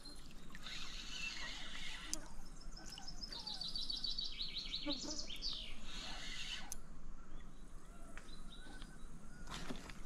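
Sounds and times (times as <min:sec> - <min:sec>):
songbird chirping: 0:00.0 - 0:10.0.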